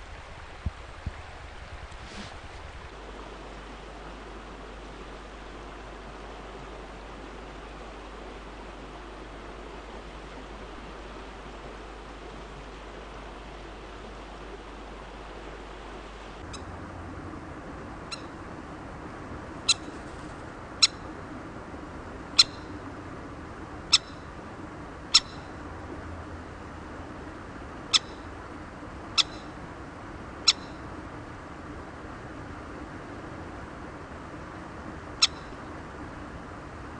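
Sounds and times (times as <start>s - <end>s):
river hissing: 1.9s - 16.4s
kingfisher sharp call notes: 22.4s - 22.7s, 27.9s - 28.3s, 29.2s - 29.6s.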